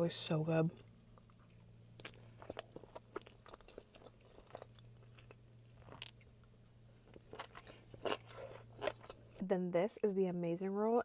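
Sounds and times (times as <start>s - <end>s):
person chewing with wet clicks: 0.7s - 9.4s.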